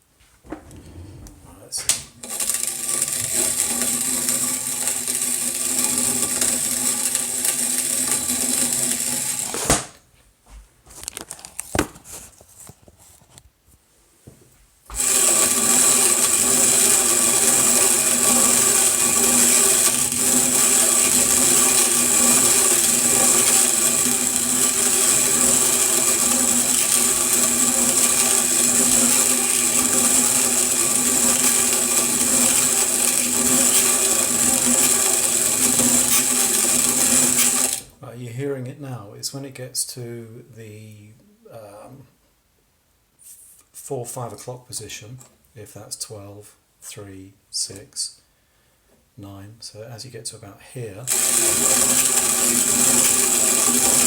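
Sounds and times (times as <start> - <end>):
hand coffee grinder grinding: 1.9 - 9.9, 14.9 - 37.9, 51.1 - 54.0
grinder clicks: 1.9 - 10.0, 14.9 - 37.9, 51.1 - 54.0.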